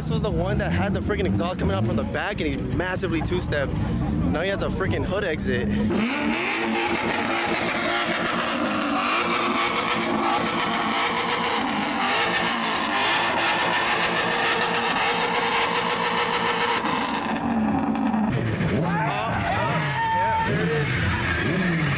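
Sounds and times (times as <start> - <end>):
car engine at high revs: 0.0 - 21.9
exhaust crackling pops: 5.8 - 18.9.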